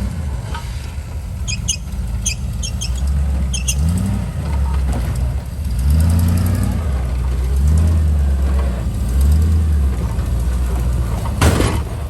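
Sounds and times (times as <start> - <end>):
truck engine revving: 0.0 - 12.0
short high squeaks: 1.4 - 4.2.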